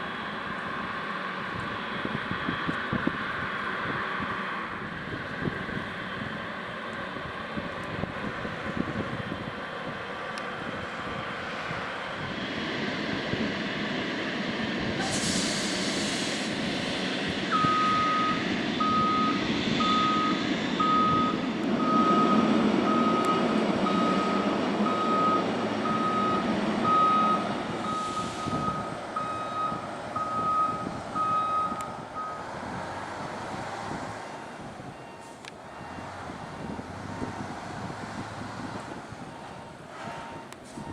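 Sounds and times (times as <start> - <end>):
short hiss: 15.0 - 16.6
backup alarm beeping: 17.6 - 32.4, 34.2 - 36.1.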